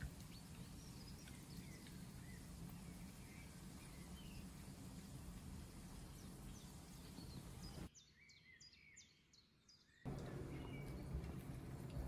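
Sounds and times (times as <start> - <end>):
birds chirping: 0.0 - 12.0
low steady hum: 10.1 - 12.0.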